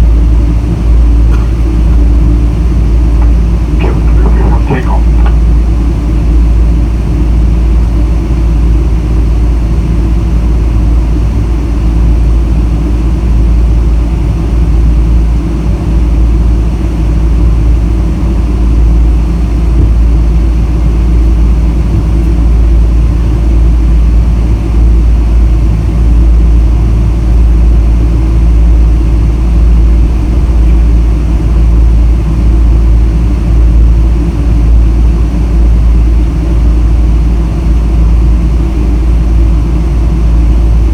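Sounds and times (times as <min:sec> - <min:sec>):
jet engines rumbling: 0:00.0 - 0:26.1.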